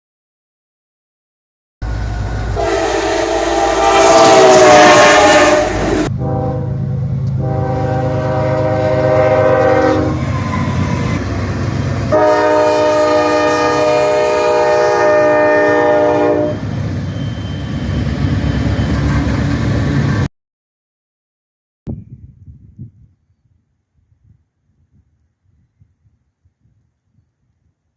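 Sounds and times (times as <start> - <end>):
train rumbling: 1.8 - 20.3
locomotive horn blasts: 2.2 - 11.0, 12.1 - 17.9.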